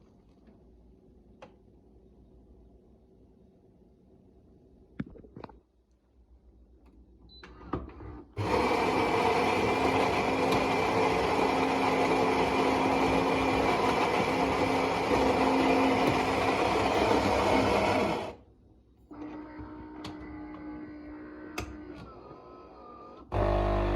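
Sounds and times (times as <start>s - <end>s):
espresso machine motor whirring: 8.4s - 18.4s, 23.3s - 23.9s.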